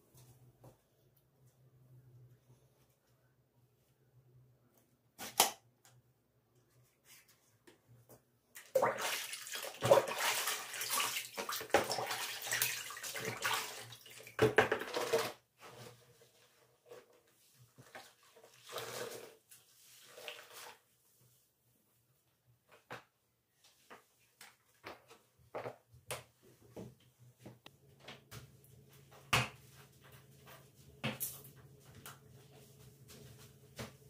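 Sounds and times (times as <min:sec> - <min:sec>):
water splashing and running: 0:08.6 - 0:14.4.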